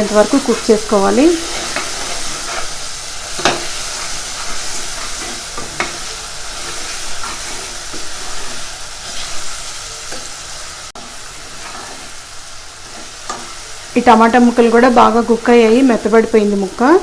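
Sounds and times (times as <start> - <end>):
vegetables sizzling in oil: 0.0 - 17.0
spoon scraping pot: 0.2 - 9.5.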